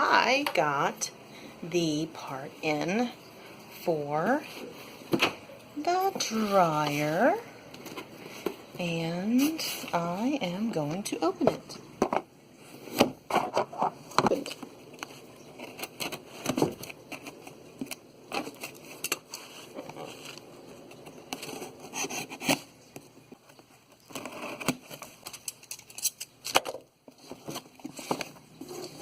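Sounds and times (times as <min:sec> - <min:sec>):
packaging scraping and crackling: 0:13.3 - 0:22.7, 0:23.5 - 0:29.0.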